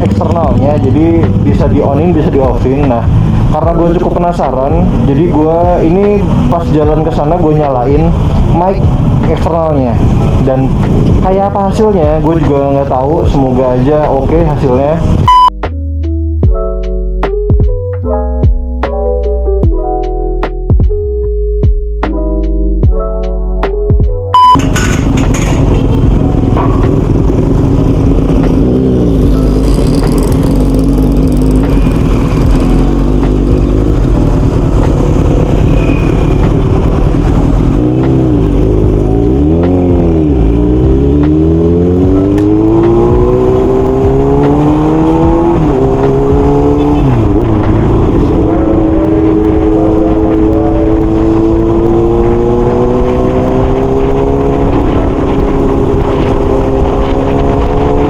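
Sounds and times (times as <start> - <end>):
motorcycle engine accelerating: 0.0 - 15.5, 24.4 - 58.0.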